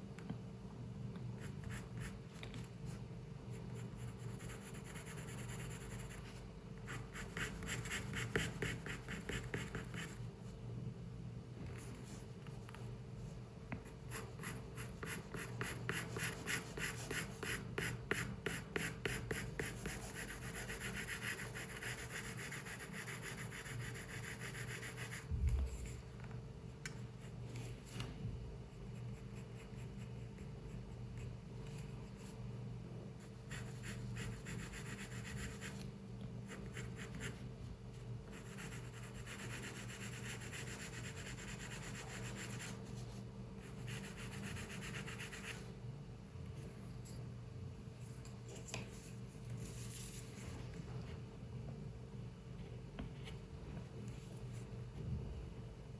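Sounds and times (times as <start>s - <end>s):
steady low hum: 0.0s - 55.9s
pencil scratching on paper: 1.4s - 2.2s, 3.5s - 10.2s, 13.8s - 26.0s, 33.2s - 35.9s, 36.5s - 37.4s, 38.3s - 45.6s.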